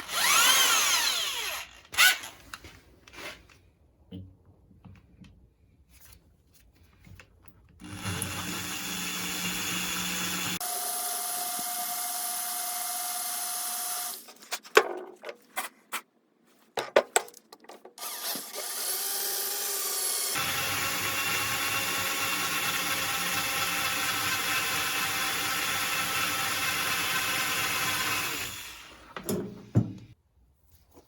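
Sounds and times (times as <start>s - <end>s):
electric drill boring metal: 0.0s - 2.3s, 7.8s - 14.2s, 18.0s - 29.3s.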